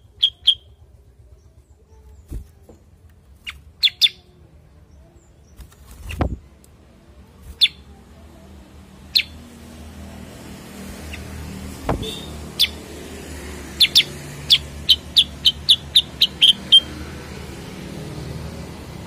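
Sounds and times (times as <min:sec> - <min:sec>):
bird giving sharp chirps: 0:00.0 - 0:00.8, 0:09.1 - 0:09.5, 0:11.0 - 0:17.0
dull thump: 0:11.8 - 0:12.2.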